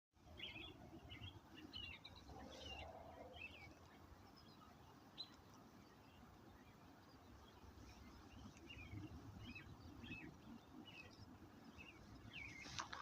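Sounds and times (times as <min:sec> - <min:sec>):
faint songbird song: 0:00.2 - 0:13.0.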